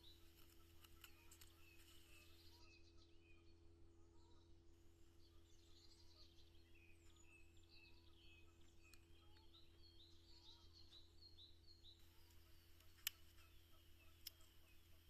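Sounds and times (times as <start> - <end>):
faint birdsong chirps: 0.0 - 15.0
steady low hum: 0.0 - 15.0
faint click: 0.1 - 2.3, 12.2 - 15.0.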